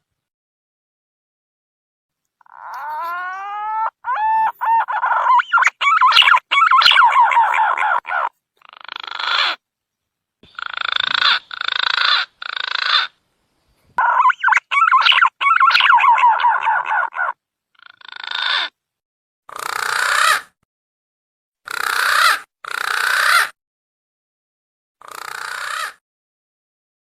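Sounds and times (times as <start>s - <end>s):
green pigeon calls: 2.4s - 9.6s, 10.4s - 13.2s, 14.0s - 18.7s.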